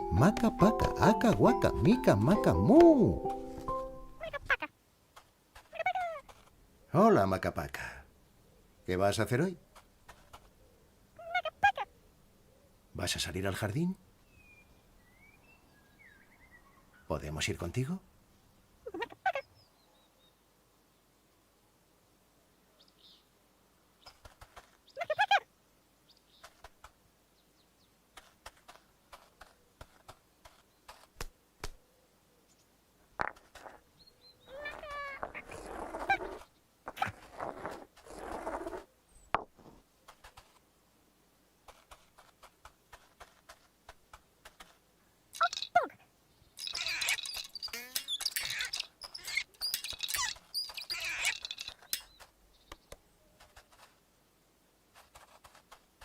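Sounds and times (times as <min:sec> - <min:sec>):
character's squeaky babble: 0:04.2 - 0:04.7, 0:05.7 - 0:06.3, 0:11.2 - 0:11.9, 0:18.9 - 0:19.5, 0:25.0 - 0:25.5, 0:34.5 - 0:37.3, 0:45.4 - 0:46.0, 0:46.6 - 0:52.0
squeaky chirps and squeals: 0:34.4 - 0:38.9, 0:45.4 - 0:46.0, 0:46.6 - 0:52.3
high warbling bird call: 0:46.6 - 0:52.1
quick clicks: 0:46.6 - 0:53.9.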